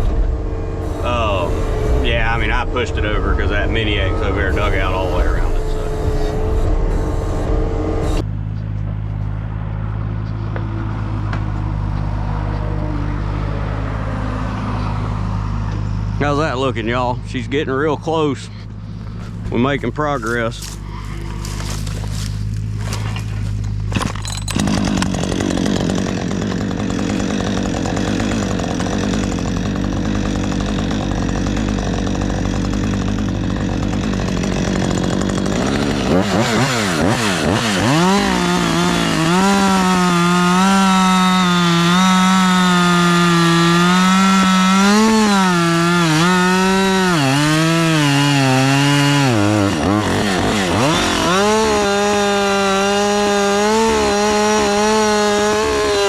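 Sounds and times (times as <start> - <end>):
droning note rising and falling: 0.0 - 8.2
engine running hard: 0.0 - 56.0.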